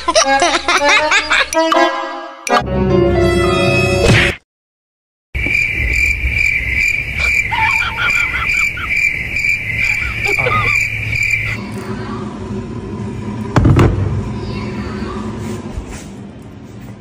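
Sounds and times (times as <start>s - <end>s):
cricket-like chirring trill: 5.4s - 11.9s
low hum: 9.6s - 17.0s.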